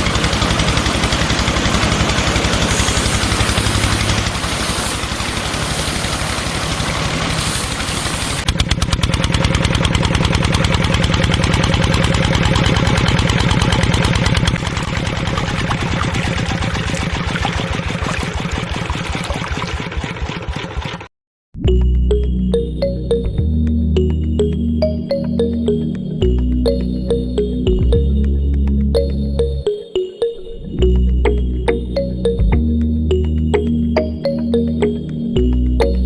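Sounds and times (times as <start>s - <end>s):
small motor running: 0.0s - 20.8s
fast mechanical chatter: 0.0s - 21.0s.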